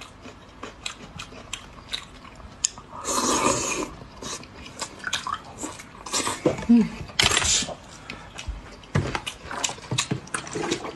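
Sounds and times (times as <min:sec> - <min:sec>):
chewing and biting: 0:00.0 - 0:02.8, 0:08.3 - 0:10.9.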